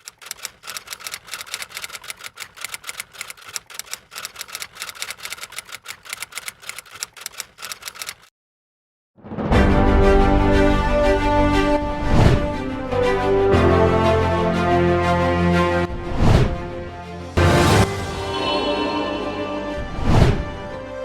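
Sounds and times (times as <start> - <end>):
typewriter keys clacking: 0.0 - 8.3
music: 9.2 - 21.0.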